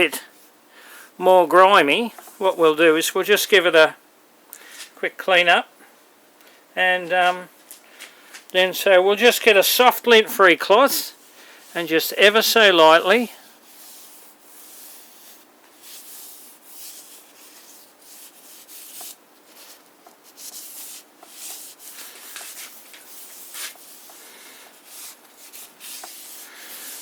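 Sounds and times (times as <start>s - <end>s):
cloth wiping metal: 10.9s - 27.0s.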